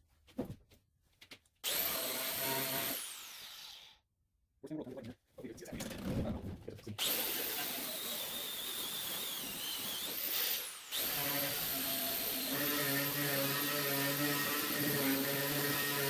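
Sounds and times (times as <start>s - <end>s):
power tool grinding paint off steel: 1.6s - 3.8s, 7.0s - 16.0s.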